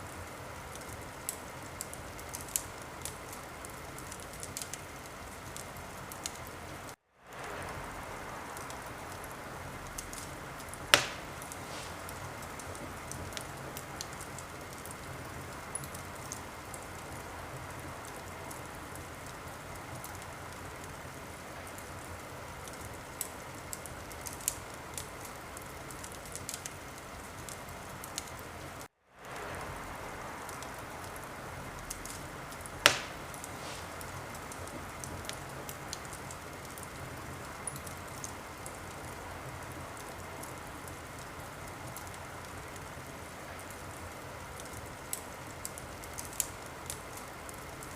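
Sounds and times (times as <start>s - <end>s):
wood fire hissing and crackling: 0.0s - 47.9s
fire log popping: 8.5s - 17.2s, 29.2s - 38.8s.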